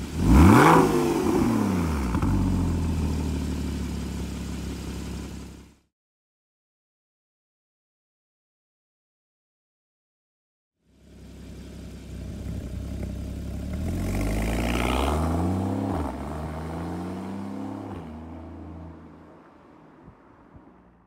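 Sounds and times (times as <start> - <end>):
car engine accelerating hard: 0.0 - 3.7, 12.0 - 19.2.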